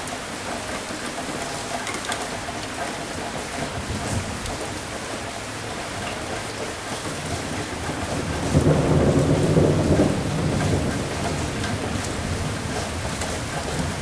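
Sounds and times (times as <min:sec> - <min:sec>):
steady rain: 0:00.0 - 0:14.0
thunder rumbling: 0:07.2 - 0:14.0.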